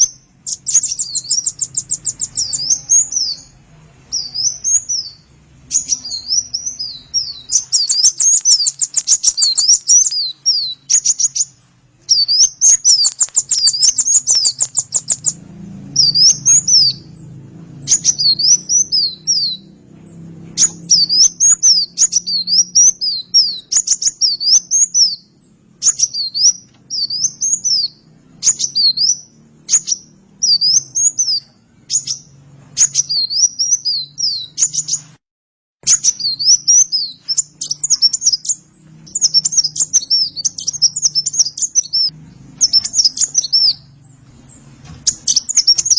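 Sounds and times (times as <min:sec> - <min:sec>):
bird chattering trills: 0:00.0 - 0:15.4, 0:16.0 - 0:17.2, 0:17.8 - 0:19.7, 0:20.5 - 0:35.1, 0:35.8 - 0:45.9
bird singing whistled notes: 0:00.0 - 0:17.2, 0:17.8 - 0:19.8, 0:20.5 - 0:35.2, 0:35.8 - 0:45.9
faint low hum: 0:00.0 - 0:35.0.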